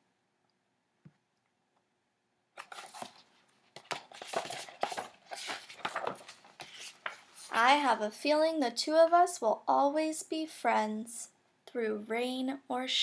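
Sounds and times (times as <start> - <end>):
paper rustling and crinkling: 2.6 - 7.9.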